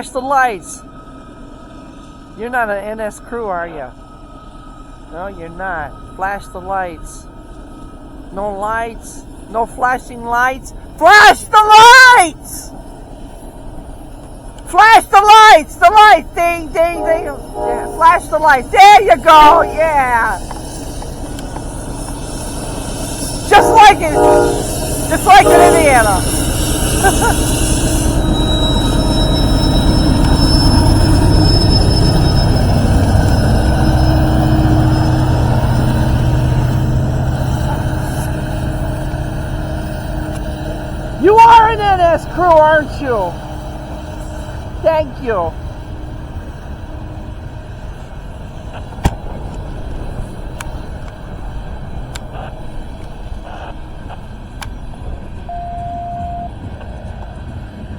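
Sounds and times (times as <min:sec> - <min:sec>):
train wheels rumbling on rails: 0:04.0 - 0:57.9
high wheel squeal: 0:15.1 - 0:44.9
brief high tone: 0:16.7 - 0:20.4, 0:23.5 - 0:26.3, 0:55.5 - 0:56.6.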